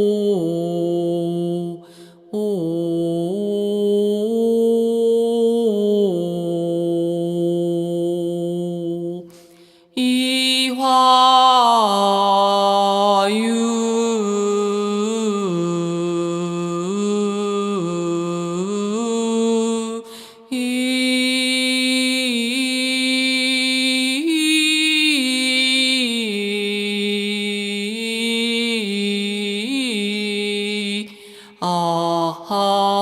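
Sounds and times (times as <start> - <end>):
person chanting wordless melody: 0.0 - 9.3, 10.0 - 33.0.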